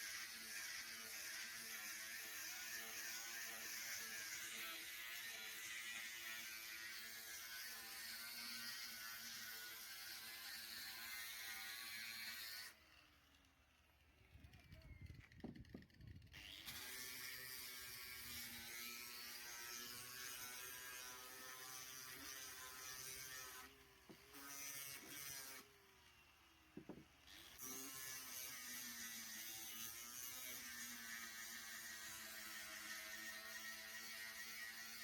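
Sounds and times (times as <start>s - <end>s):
power tool motor whining: 0.0s - 25.7s.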